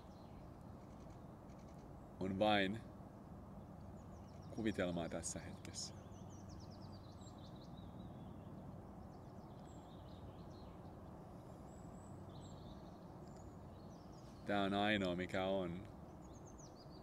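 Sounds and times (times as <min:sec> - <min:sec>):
birds chirping: 0:03.6 - 0:17.0.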